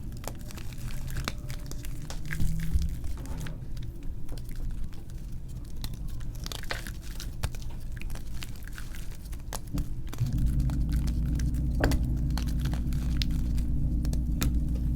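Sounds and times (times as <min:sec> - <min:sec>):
steady low hum: 0:09.7 - 0:14.9.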